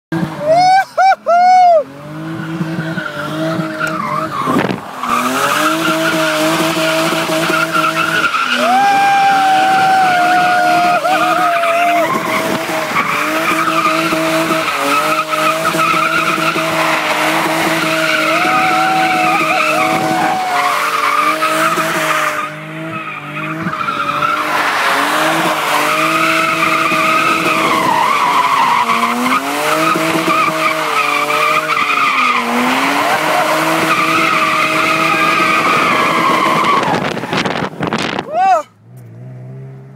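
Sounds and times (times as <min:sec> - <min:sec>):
car engine from inside: 0:38.8 - 0:39.9.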